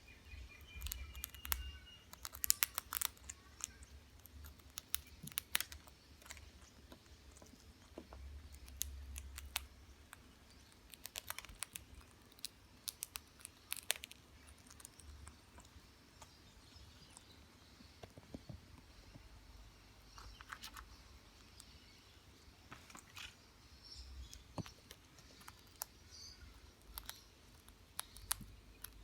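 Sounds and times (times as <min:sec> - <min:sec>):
potato chips crunching: 0:00.8 - 0:06.4.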